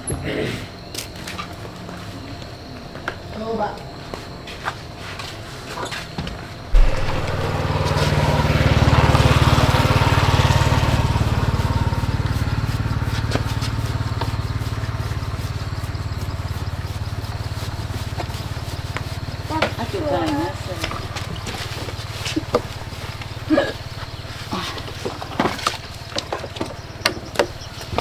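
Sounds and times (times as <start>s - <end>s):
small motorbike engine running: 6.8s - 28.0s.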